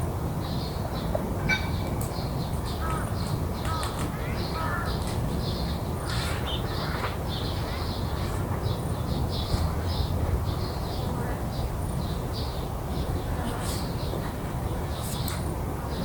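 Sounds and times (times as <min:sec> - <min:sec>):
low city rumble: 0:00.0 - 0:16.0
crows cawing: 0:04.6 - 0:05.0.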